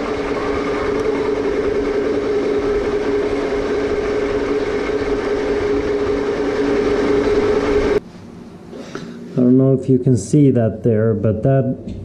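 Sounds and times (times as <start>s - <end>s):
metal lathe humming: 0.0s - 8.0s.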